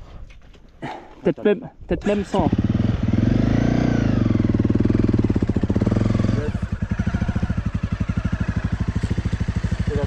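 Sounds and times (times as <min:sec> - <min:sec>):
motorcycle engine revving and idling: 0:02.0 - 0:10.0.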